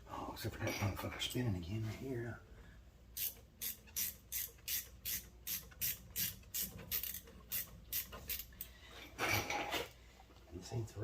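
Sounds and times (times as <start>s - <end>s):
ratchet wrench clicking: 3.2s - 8.7s.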